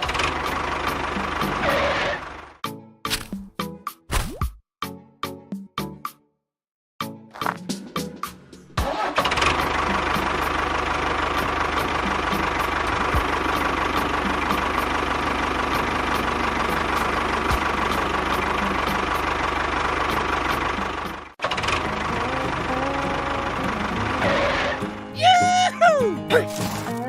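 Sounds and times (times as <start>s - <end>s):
small engine running: 8.8s - 25.1s.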